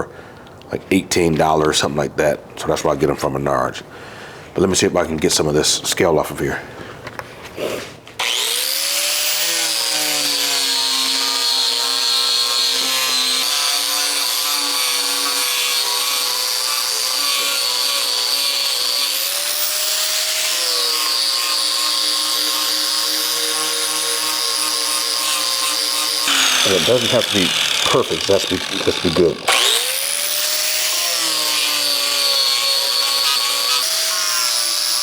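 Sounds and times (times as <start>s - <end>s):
angle grinder whining on steel: 8.2s - 35.0s.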